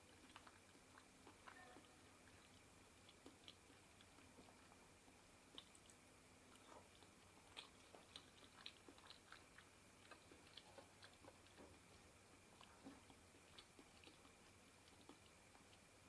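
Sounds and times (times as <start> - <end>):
person chewing: 0.0 - 16.0.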